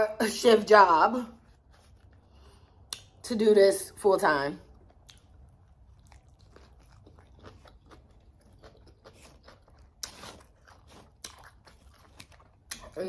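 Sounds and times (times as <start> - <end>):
person chewing a sandwich: 1.4 - 3.2, 4.6 - 13.0.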